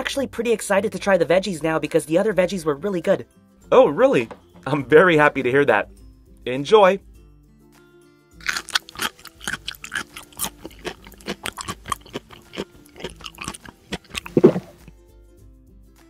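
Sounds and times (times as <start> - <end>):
crunchy chewing: 8.4 - 15.0.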